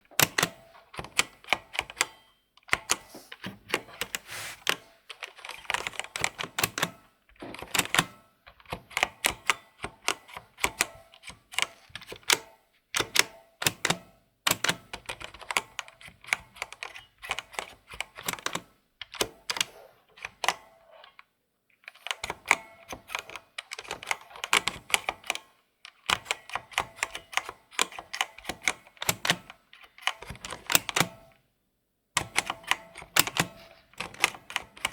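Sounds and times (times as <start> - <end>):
computer keyboard typing: 0.1 - 3.1, 3.7 - 20.7, 21.9 - 31.2, 32.2 - 34.9.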